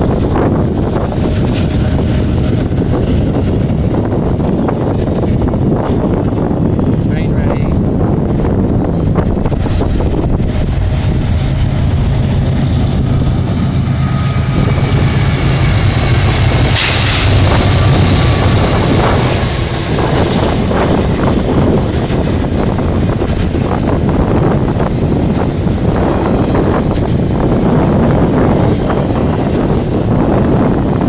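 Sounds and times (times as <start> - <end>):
diesel locomotive engine drone: 0.0 - 31.0
wind buffeting microphone: 0.0 - 31.0
train wheels knocking and clattering: 14.6 - 31.0.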